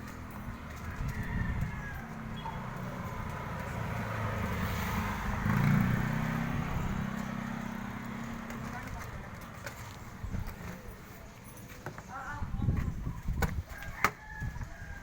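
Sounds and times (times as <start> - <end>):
engine humming: 0.0 - 11.2.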